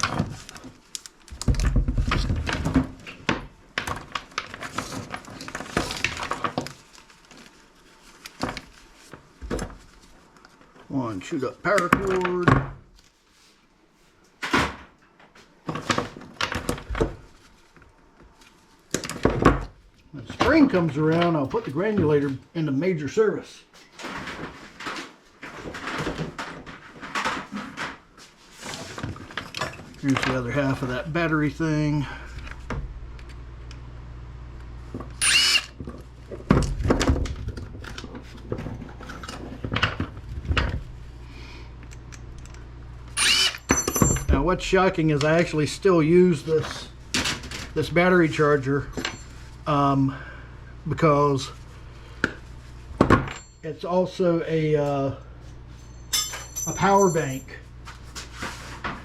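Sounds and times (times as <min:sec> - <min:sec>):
scrap items knocking and clattering: 0:00.0 - 0:06.8, 0:23.9 - 0:30.6
steady low hum: 0:28.9 - 0:59.0
power drill whining: 0:35.2 - 0:35.8, 0:43.2 - 0:44.0.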